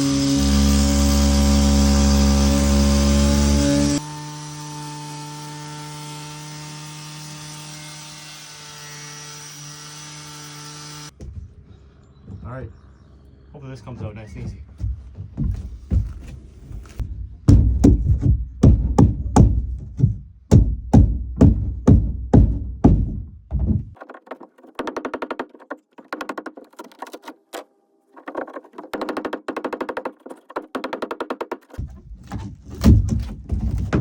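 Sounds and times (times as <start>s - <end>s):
heavy thuds pounding wood: 11.1s - 12.4s, 14.4s - 24.0s, 28.3s - 34.0s.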